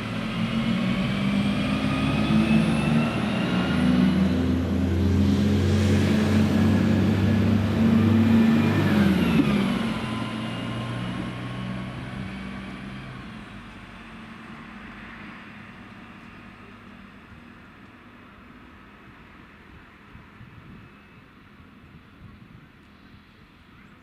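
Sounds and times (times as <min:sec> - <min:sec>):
diesel train passing: 0:00.0 - 0:21.8.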